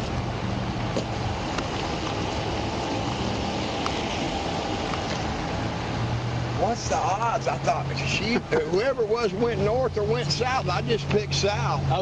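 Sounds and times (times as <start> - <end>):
road or wind noise: 0.0 - 12.0
vehicle engine idling: 0.0 - 12.0.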